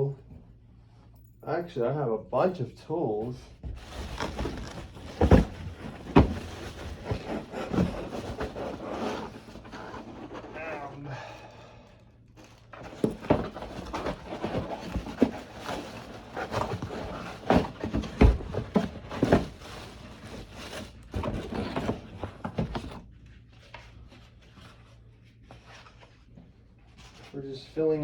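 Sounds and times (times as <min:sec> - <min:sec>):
packaging rustling and scraping: 0:03.6 - 0:11.1, 0:12.4 - 0:26.1.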